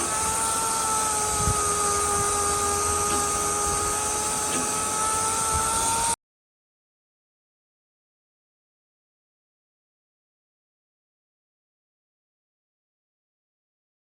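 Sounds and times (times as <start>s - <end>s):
power tool motor whining: 0.0s - 6.2s.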